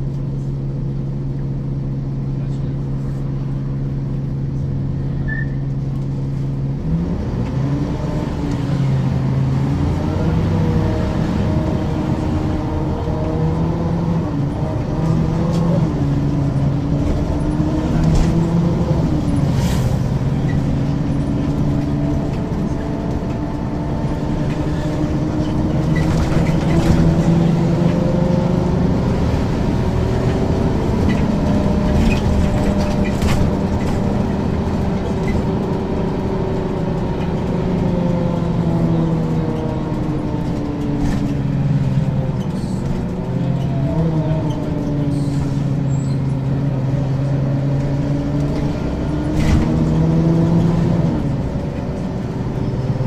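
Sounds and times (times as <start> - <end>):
bus diesel engine: 0.0 - 53.0
rattles and clicks: 20.4 - 28.0, 30.2 - 45.6.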